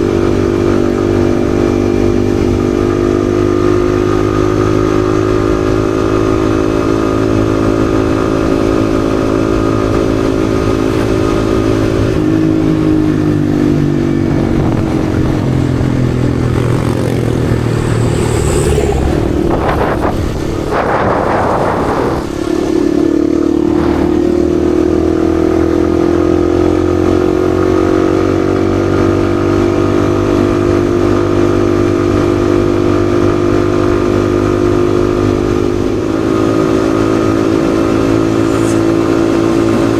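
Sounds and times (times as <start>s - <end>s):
motorcycle engine running: 0.0s - 39.9s
rush of noise: 9.6s - 26.6s, 35.3s - 39.9s.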